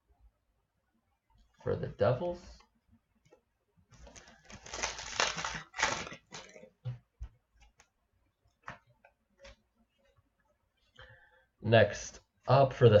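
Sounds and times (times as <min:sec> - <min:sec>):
trading cards rustling and sliding: 0:04.0 - 0:06.5.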